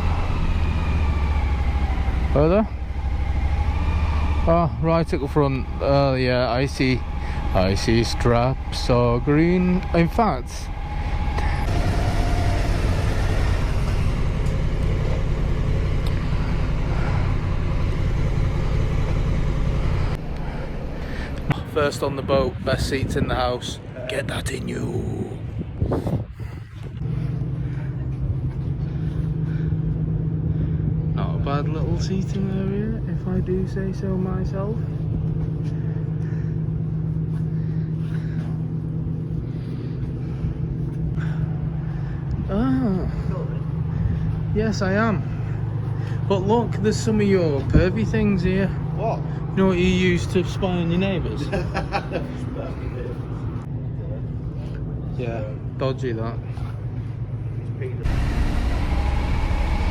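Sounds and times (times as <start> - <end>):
motorcycle engine idling: 0.0 - 21.9, 27.0 - 49.2.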